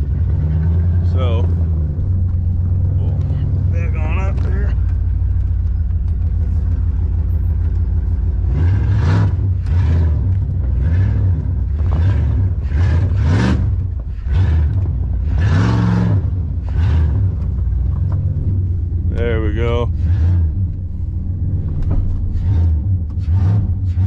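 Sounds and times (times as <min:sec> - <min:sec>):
truck engine idling and revving: 0:00.0 - 0:24.0.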